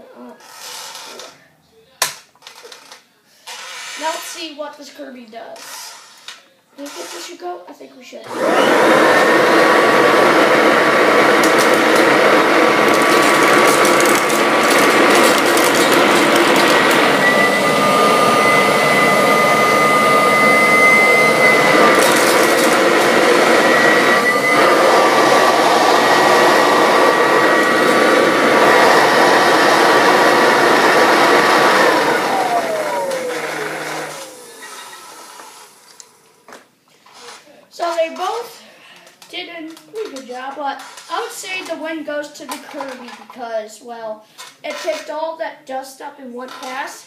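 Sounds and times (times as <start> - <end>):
vacuum cleaner motor whining: 8.3 - 36.2
debris rattling through vacuum: 11.3 - 19.8.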